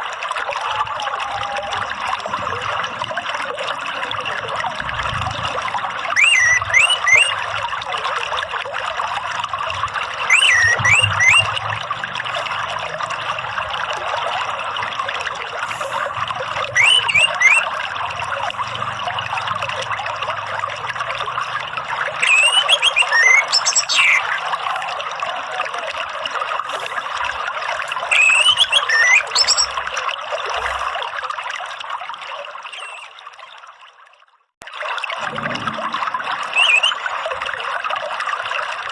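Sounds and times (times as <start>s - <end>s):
running water trickling: 0.0s - 38.9s
thrush whistled calls: 6.1s - 7.6s, 10.2s - 12.8s, 15.7s - 17.9s, 22.1s - 25.0s, 27.9s - 30.0s, 32.7s - 33.2s, 36.4s - 37.2s.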